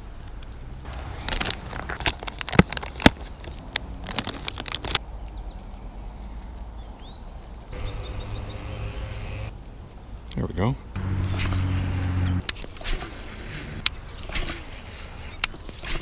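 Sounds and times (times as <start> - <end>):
fishing lure and line crinkling: 0.1 - 7.8.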